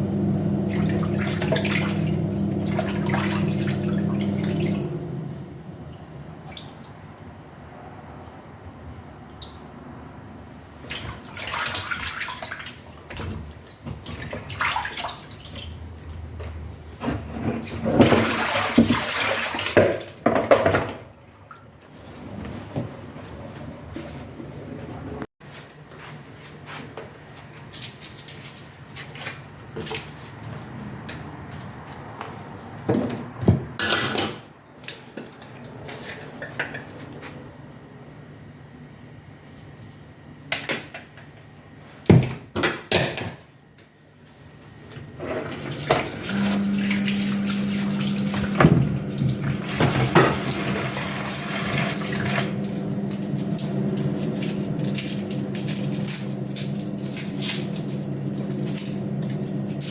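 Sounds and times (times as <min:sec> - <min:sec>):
tap water running into sink: 0:00.6 - 0:05.2, 0:45.5 - 0:54.2
pots and utensils clattering: 0:33.8 - 0:34.5.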